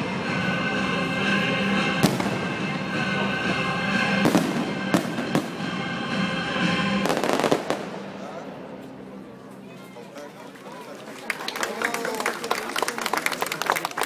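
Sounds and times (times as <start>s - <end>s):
music playing: 0.0s - 14.0s
fireworks bangs: 2.0s - 2.8s, 3.9s - 5.9s, 7.0s - 8.2s.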